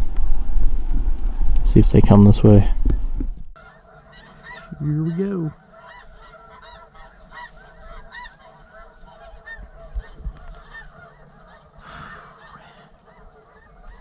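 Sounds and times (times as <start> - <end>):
low bumps: 0.0 - 3.6
geese honking: 3.6 - 14.0.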